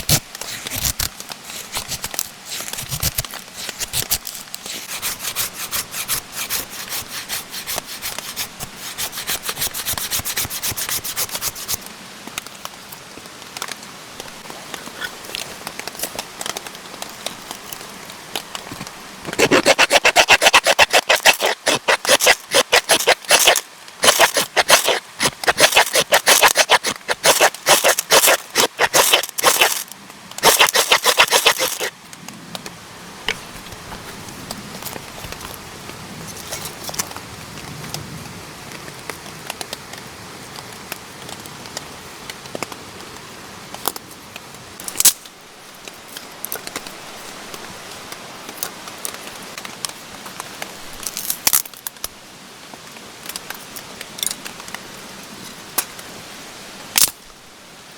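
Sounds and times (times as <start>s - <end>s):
scattered clicks and scrapes: 0.0s - 11.9s, 14.4s - 31.9s, 36.2s - 37.2s
crinkling and rustling handling: 0.0s - 37.7s.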